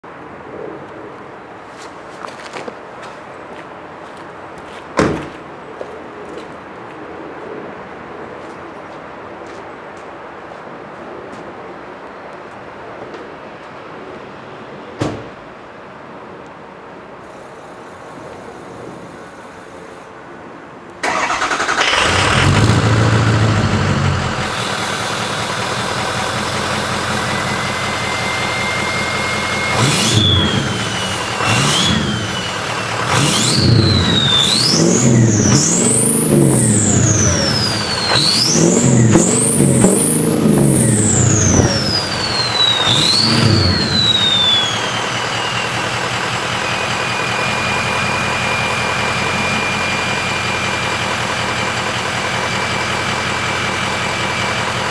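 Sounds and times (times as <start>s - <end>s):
diesel truck engine revving: 21.0s - 54.9s
turbo whistle: 24.6s - 40.0s, 40.6s - 51.0s.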